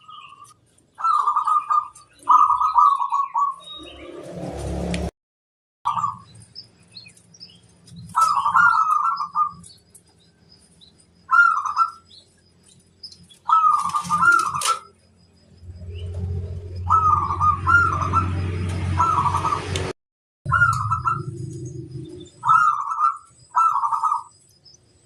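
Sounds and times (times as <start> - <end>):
small birds chirping: 0.0 - 4.2, 5.9 - 19.8, 20.5 - 25.0
dove cooing: 1.0 - 3.6, 8.1 - 9.6, 11.3 - 12.1, 13.4 - 14.9, 16.8 - 19.7, 20.5 - 24.3.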